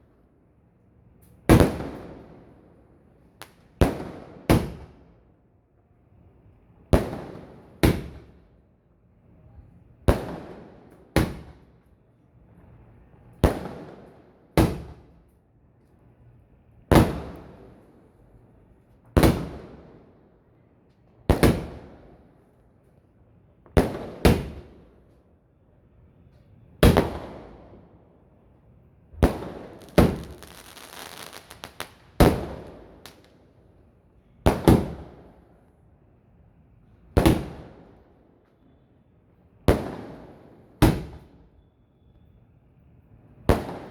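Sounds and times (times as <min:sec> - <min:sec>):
fireworks bangs echoing: 0:29.2 - 0:33.3
fireworks crackling: 0:29.3 - 0:33.4.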